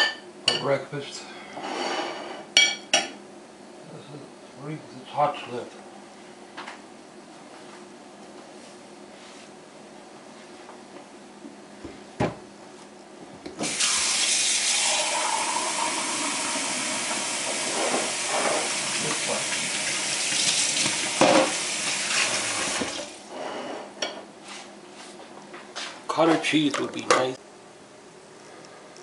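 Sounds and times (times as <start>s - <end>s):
tap water running into sink: 13.6s - 23.1s.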